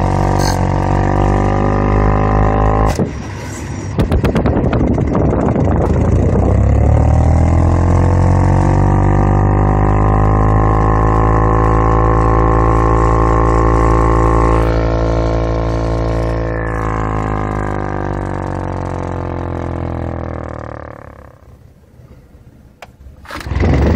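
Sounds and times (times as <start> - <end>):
car blower fan droning: 1.9 - 7.4.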